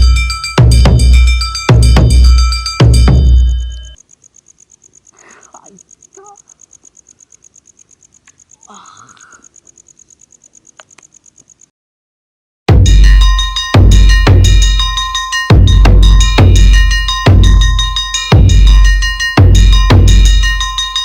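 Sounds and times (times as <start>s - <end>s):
loud drum music: 0.0s - 3.4s, 12.7s - 20.6s
insect chirping: 0.0s - 11.7s, 12.8s - 21.0s
faint murmurs: 5.1s - 6.7s, 8.6s - 9.6s.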